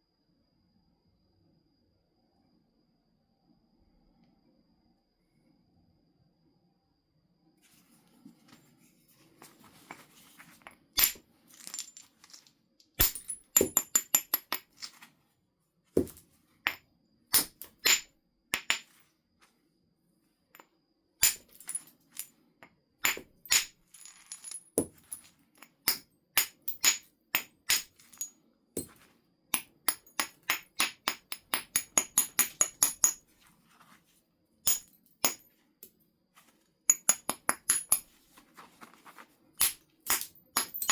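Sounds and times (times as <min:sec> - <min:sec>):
tools striking flint: 0:09.9 - 0:15.1, 0:16.0 - 0:19.0, 0:21.2 - 0:22.3, 0:23.0 - 0:33.4, 0:34.6 - 0:40.9.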